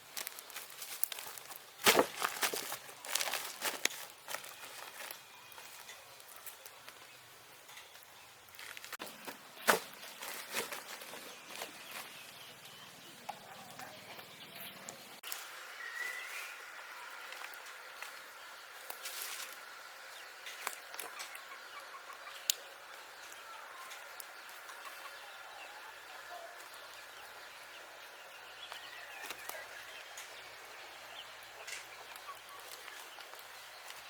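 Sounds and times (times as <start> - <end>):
chickens clucking: 9.0 - 34.0.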